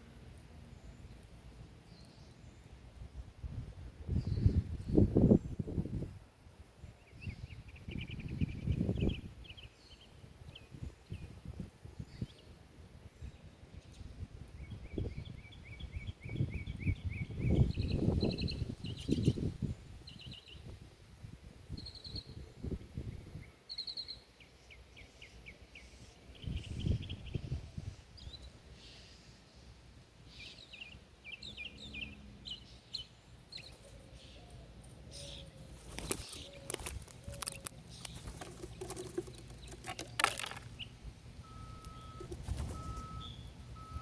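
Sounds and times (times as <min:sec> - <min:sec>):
songbirds trilling: 0:13.2 - 0:20.7, 0:21.7 - 0:44.0
birds clicking and fluttering: 0:33.5 - 0:41.0, 0:41.6 - 0:44.0
reversing alarm beeping: 0:41.4 - 0:44.0.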